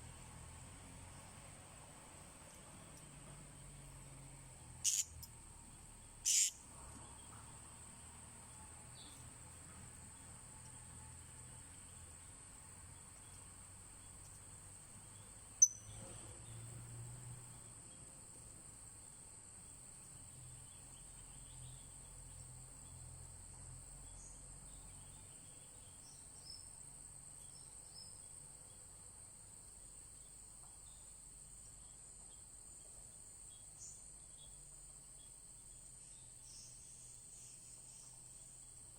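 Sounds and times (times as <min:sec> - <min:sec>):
crickets droning: 0:00.0 - 0:38.9
faint bird chirps: 0:04.8 - 0:07.6, 0:15.0 - 0:16.7.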